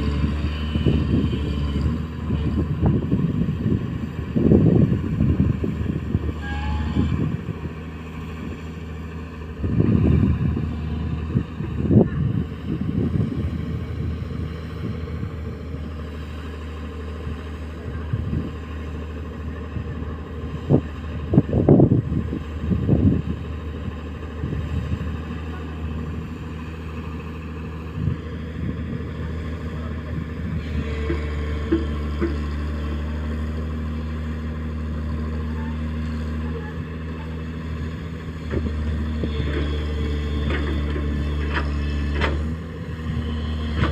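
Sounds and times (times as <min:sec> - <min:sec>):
excavator diesel engine running: 0:00.0 - 0:43.9
low rumbling and knocking: 0:18.0 - 0:35.4, 0:37.8 - 0:43.9.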